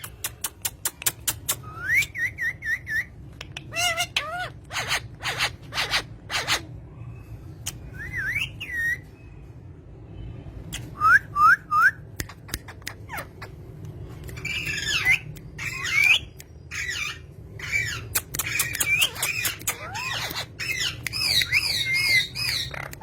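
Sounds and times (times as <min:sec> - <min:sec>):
sharp clicks: 0:00.0 - 0:01.7, 0:18.1 - 0:21.8
bird chirping and squawking: 0:00.0 - 0:09.3, 0:12.3 - 0:23.0.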